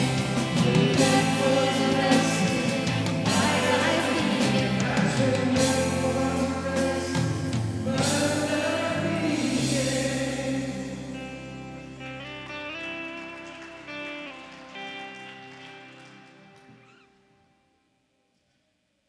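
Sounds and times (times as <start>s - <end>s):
group of people singing: 0.0s - 11.5s
worship band playing: 0.0s - 16.9s
guitar ringing: 0.0s - 17.2s.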